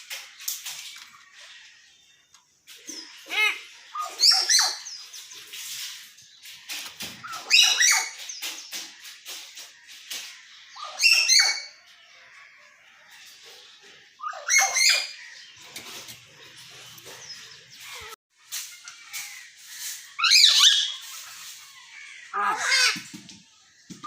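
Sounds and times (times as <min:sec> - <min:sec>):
bird clicks and chatter: 0:02.3 - 0:11.5.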